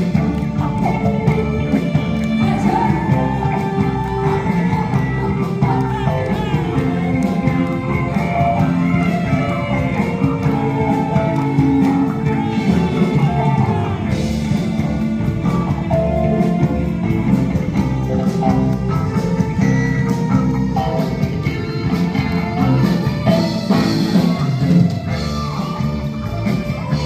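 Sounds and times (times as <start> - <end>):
electric guitar: 0.0 - 27.0
live rock band playing: 0.0 - 27.0.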